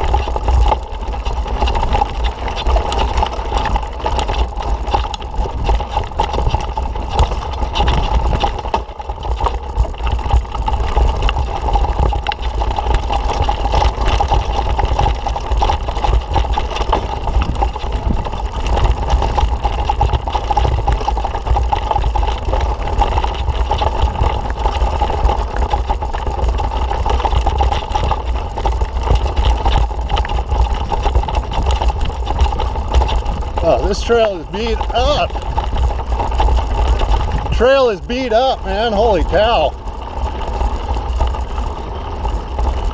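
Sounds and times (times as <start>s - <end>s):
wind rushing over microphone: 14.5s - 21.0s, 30.5s - 42.9s.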